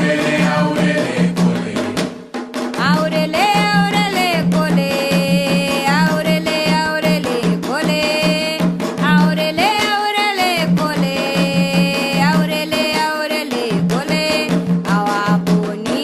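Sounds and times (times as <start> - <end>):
voices singing a chant: 0.0 - 2.2, 2.9 - 7.3
continuous drumming: 0.0 - 16.0.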